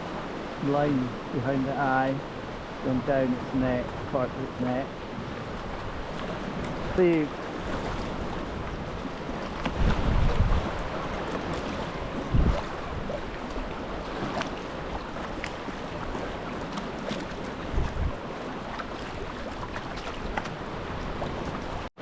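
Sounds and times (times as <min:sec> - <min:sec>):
water lapping around a kayak: 0:00.0 - 0:22.0.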